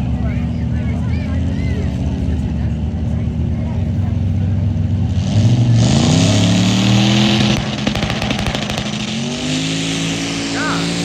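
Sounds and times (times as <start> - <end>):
truck engine accelerating: 0.0 - 11.0
loud hissing rush: 6.6 - 11.0.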